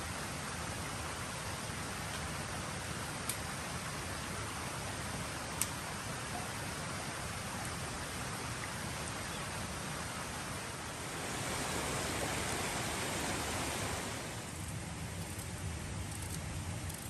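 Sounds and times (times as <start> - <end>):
creek rushing: 3.6 - 14.7.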